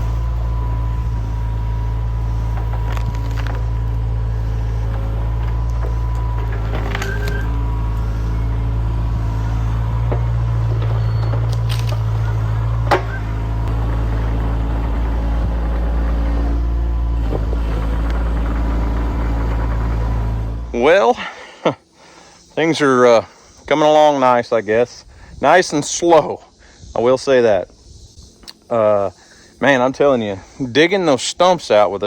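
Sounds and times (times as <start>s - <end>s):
excavator diesel engine running: 0.0s - 23.2s
faint steady whine: 0.0s - 32.0s
sharp knocks: 12.8s - 13.4s.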